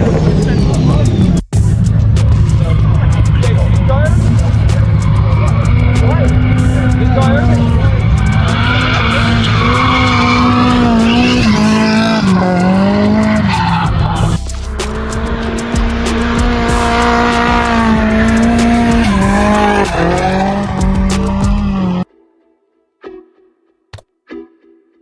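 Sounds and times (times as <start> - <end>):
tyres squealing and skidding: 0.0 - 22.1
car engine at high revs: 1.6 - 22.0.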